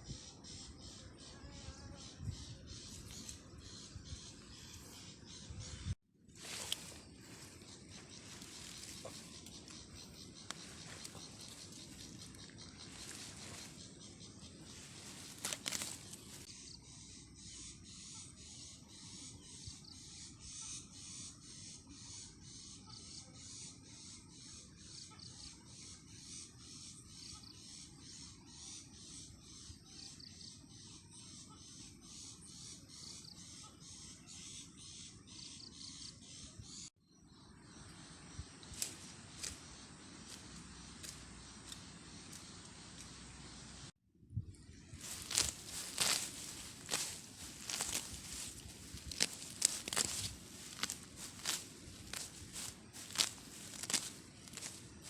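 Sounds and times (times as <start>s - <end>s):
rhythmic insect chirping: 0.0s - 33.5s, 37.1s - 43.9s, 44.6s - 55.0s
rustling hiss: 6.3s - 16.5s, 45.0s - 55.0s.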